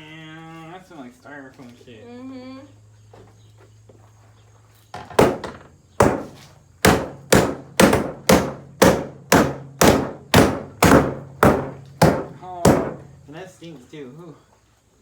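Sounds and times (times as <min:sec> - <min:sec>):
heavy blows striking refrigerator: 0:05.0 - 0:13.3.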